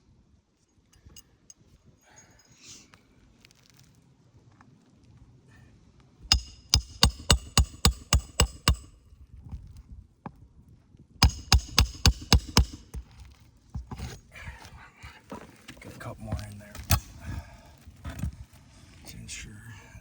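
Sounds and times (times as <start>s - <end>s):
hammer striking nail: 6.3s - 9.0s, 11.2s - 13.2s.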